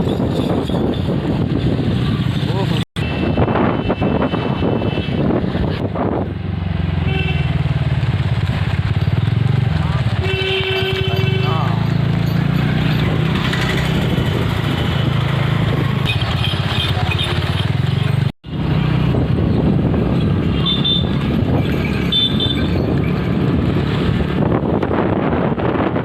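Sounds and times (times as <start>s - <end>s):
motorcycle engine running: 5.4s - 26.0s.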